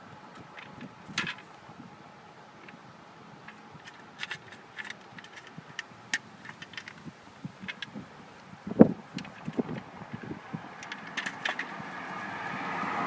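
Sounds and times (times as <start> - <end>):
plastic clicks and knocks: 3.5 - 8.5, 9.1 - 9.8, 10.8 - 11.8.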